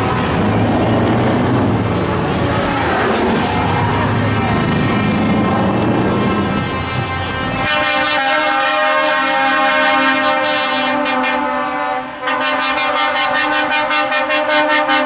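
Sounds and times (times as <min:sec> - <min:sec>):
truck air horns blasting: 0:00.0 - 0:15.0.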